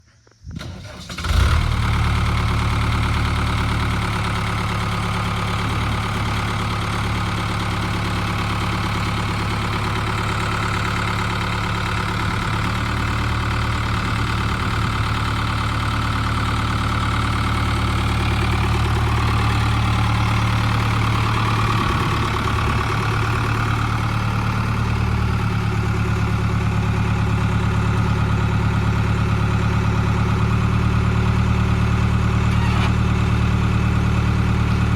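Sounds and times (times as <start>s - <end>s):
tractor engine idling: 0.6s - 34.9s.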